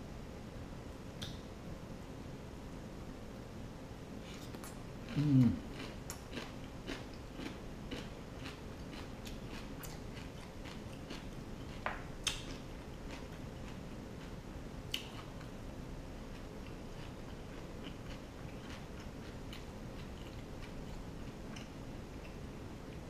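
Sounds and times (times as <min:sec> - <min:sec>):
person chewing with wet smacks: 0:04.3 - 0:15.6, 0:16.3 - 0:23.0
person humming mm: 0:05.1 - 0:05.8.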